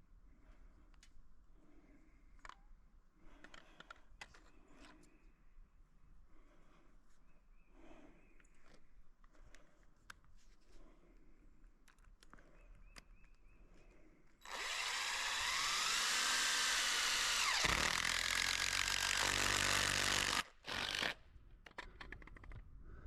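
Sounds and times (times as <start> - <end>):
cordless drill motor whining: 14.4 - 21.2.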